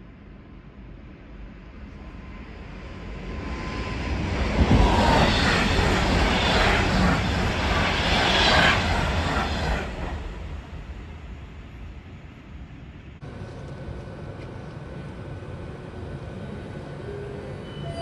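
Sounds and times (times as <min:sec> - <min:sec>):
train rushing past: 0:02.1 - 0:12.2.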